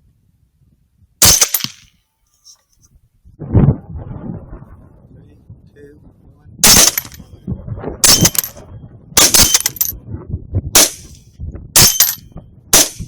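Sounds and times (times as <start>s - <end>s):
loud gunshots: 1.2s - 1.7s, 6.6s - 7.2s, 8.0s - 8.5s, 9.2s - 9.9s, 10.8s - 11.1s, 11.8s - 12.2s, 12.8s - 13.0s.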